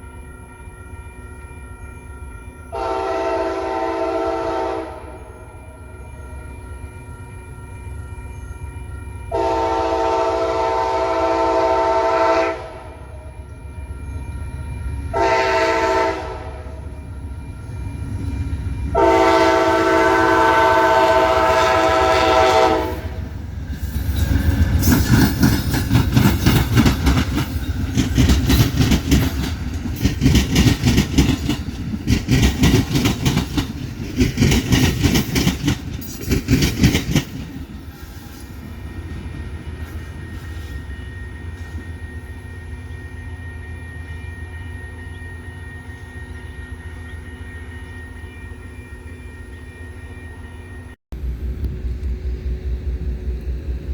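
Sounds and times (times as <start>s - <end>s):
locomotive air horn blasts: 2.7s - 5.3s, 9.3s - 13.1s, 15.1s - 16.8s, 18.9s - 23.3s
train wheels clattering: 17.2s - 42.0s.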